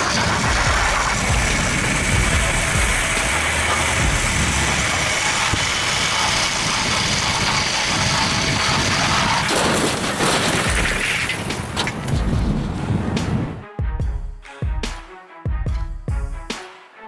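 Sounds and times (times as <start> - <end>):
heavy truck engine running: 0.0 - 13.6.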